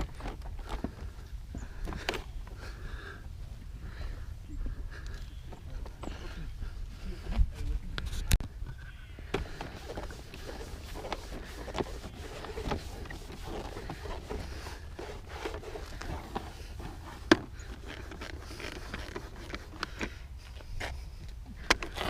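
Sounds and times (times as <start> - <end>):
cloth rubbing on metal trim: 9.4 - 19.8.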